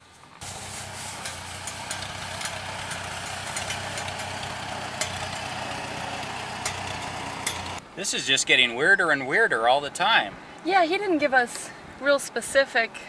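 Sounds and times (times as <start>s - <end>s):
vehicle engine humming: 0.4s - 7.9s.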